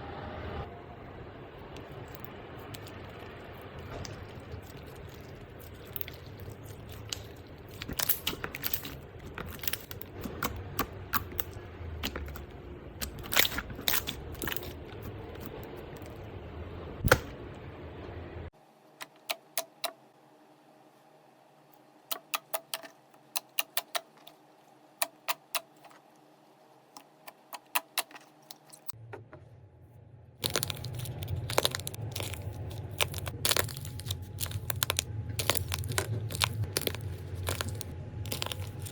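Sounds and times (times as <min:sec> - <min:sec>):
low hum: 0:00.0 - 0:18.5, 0:28.8 - 0:38.9
slime crackling and popping: 0:01.8 - 0:16.2, 0:30.4 - 0:38.9.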